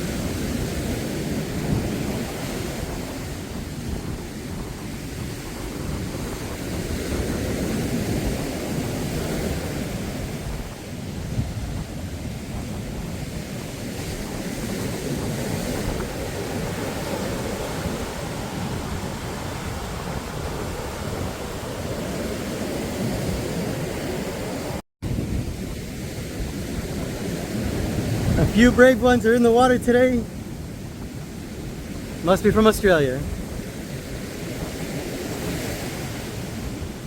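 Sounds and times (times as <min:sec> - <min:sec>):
surf breaking on a beach: 0:00.0 - 0:37.0
wind rumbling on microphone: 0:00.0 - 0:37.0.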